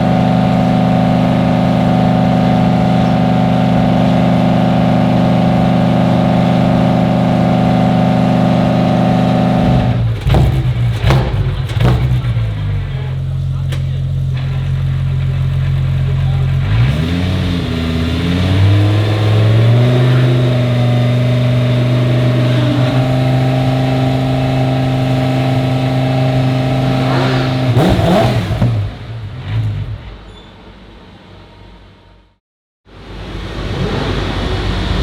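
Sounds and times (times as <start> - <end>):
exhaust crackling: 0.0 - 30.1
race car engine revving: 0.0 - 30.2, 33.1 - 35.0.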